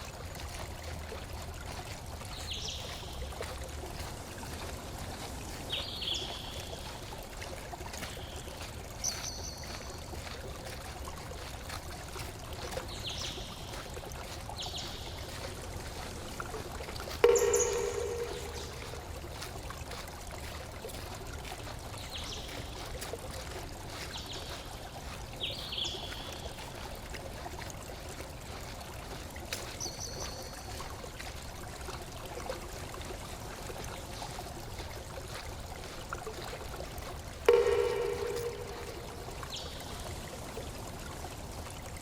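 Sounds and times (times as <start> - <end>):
flowing water rushing: 0.0 - 42.0
high bird chirps: 17.2 - 19.1, 37.5 - 40.0.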